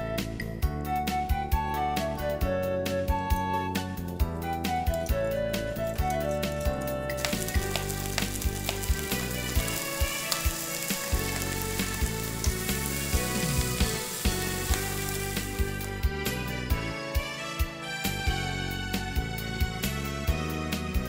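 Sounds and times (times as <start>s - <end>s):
background music with steady beat: 0.0s - 21.0s
sauce being poured: 7.1s - 16.0s
stir-fry being tossed: 7.2s - 15.8s
food sizzling in a frying pan: 7.2s - 15.9s.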